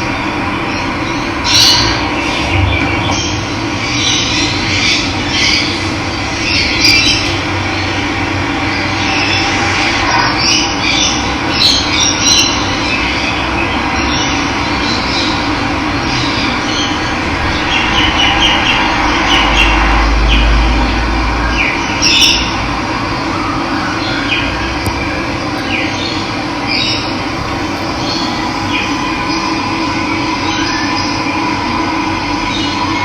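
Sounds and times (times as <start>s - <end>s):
birds chirping and calling: 0.7s - 7.9s, 10.1s - 20.6s, 25.6s - 29.8s
low rumble: 15.3s - 21.8s, 25.0s - 31.2s
running water rushing: 27.1s - 30.4s.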